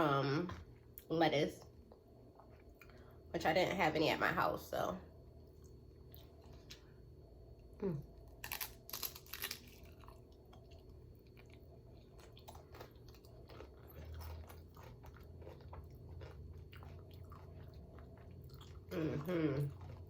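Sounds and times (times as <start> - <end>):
person chewing food: 5.4 - 20.0
crunchy bites: 8.3 - 17.8.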